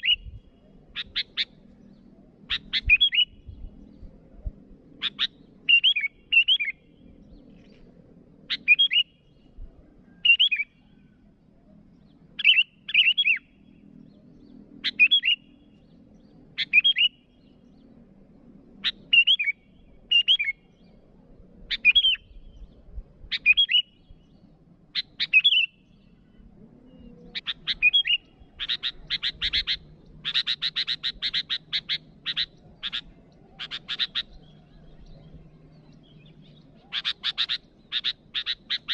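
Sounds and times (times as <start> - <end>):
bulbul calling: 2.5 - 3.6, 5.0 - 6.8, 24.9 - 25.8, 26.9 - 38.9.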